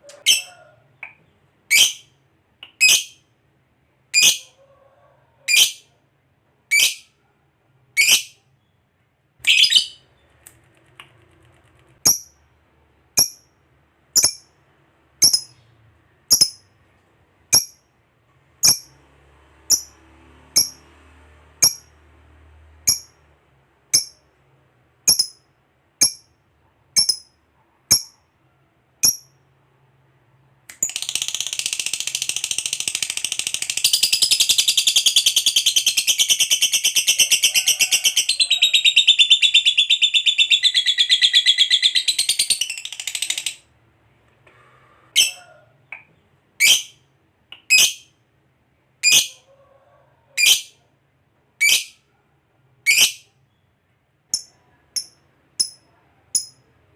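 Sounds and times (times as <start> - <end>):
lovebird chirping: 0.0 - 3.3, 4.1 - 4.5, 5.5 - 5.9, 6.7 - 7.1, 8.0 - 8.8, 9.4 - 10.3, 14.2 - 14.6, 15.2 - 16.7, 18.6 - 19.0, 19.7 - 20.0, 22.9 - 23.2, 25.1 - 25.4, 27.0 - 28.2, 30.8 - 43.6, 46.6 - 47.0, 47.6 - 48.1, 49.0 - 49.4, 51.6 - 52.0, 52.8 - 53.7
lovebird chattering trill: 9.5 - 10.0, 30.8 - 43.6.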